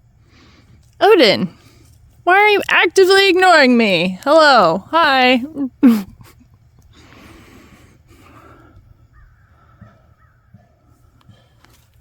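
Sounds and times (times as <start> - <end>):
faint crow cawing: 9.1 - 10.8.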